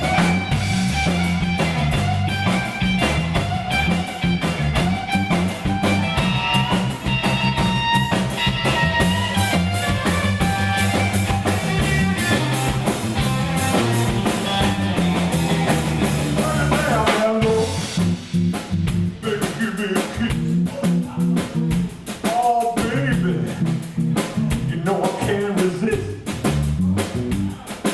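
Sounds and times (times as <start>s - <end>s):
lead guitar solo with bent notes: 0.0s - 16.4s
blues band playing: 0.0s - 27.9s.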